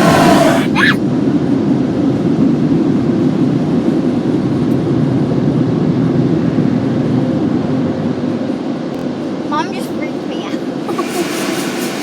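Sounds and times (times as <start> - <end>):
car wash air dryer blowers: 0.0 - 1.0, 10.8 - 12.0.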